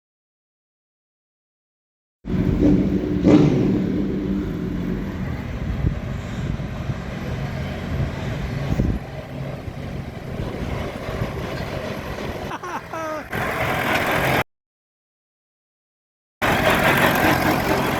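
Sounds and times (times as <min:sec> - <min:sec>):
tractor engine running: 0:02.3 - 0:14.4, 0:16.4 - 0:17.9.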